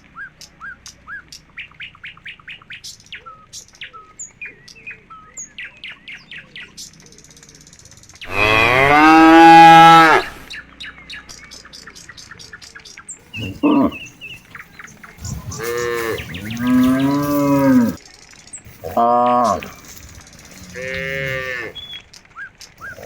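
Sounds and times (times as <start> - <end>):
small birds chirping: 0.0 - 23.0
cow mooing: 8.3 - 10.4, 13.3 - 14.6, 15.2 - 18.0, 18.7 - 22.0.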